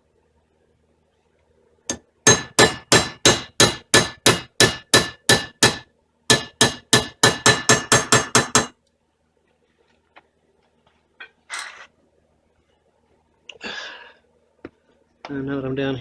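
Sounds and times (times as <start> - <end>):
hammer tapping metal: 1.9 - 8.8.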